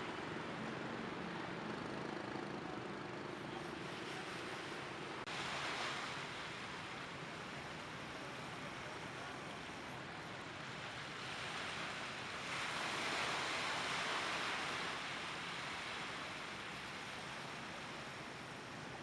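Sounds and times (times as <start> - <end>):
surf washing onto beach: 3.8 - 19.0.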